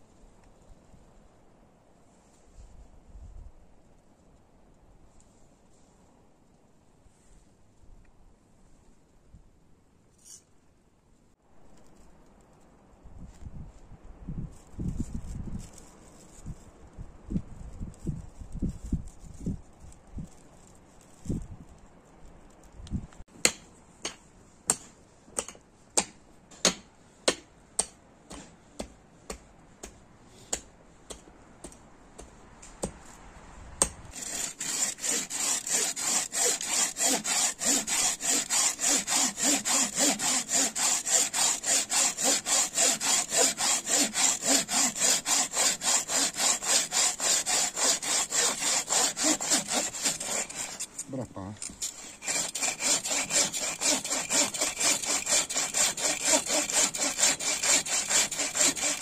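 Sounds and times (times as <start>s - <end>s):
hand saw cutting wood: 34.1s - 59.0s.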